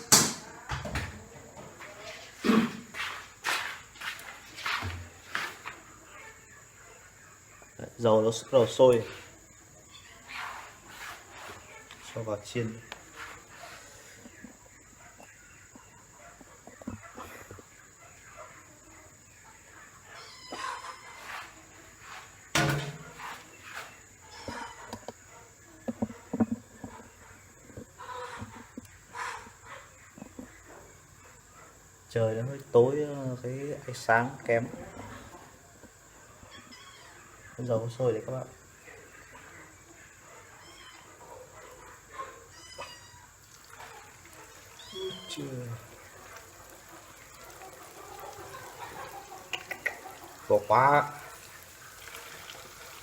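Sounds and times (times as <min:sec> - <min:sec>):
low steady hiss: 0:17.3 - 0:24.3, 0:29.9 - 0:53.0
domestic animals calling: 0:20.0 - 0:21.7, 0:36.3 - 0:37.7, 0:39.9 - 0:53.0.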